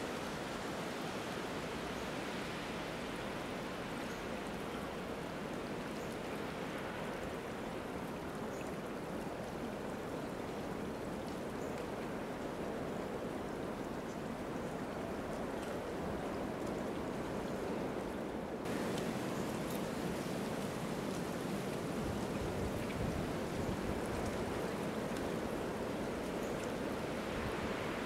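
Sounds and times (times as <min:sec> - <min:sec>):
brook water rushing: 0:18.6 - 0:28.0
faint drips: 0:18.7 - 0:27.8.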